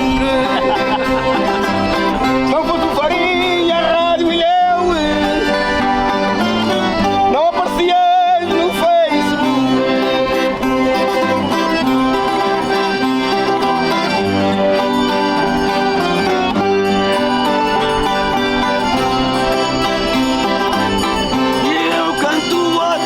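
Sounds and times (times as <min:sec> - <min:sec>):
accordion: 0:00.0 - 0:23.0
string instruments: 0:00.0 - 0:23.0.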